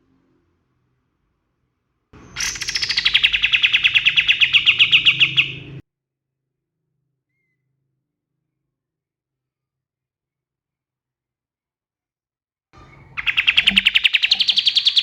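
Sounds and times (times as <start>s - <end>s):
bird singing rapid trill: 2.2s - 5.8s, 12.8s - 15.0s.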